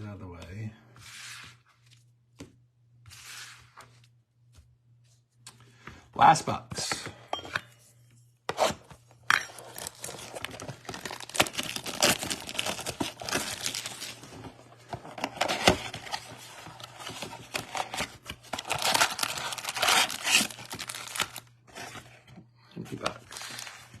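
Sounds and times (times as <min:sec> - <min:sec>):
plastic wrap tearing and crinkling: 0:09.6 - 0:14.3, 0:17.4 - 0:21.5, 0:23.2 - 0:24.0.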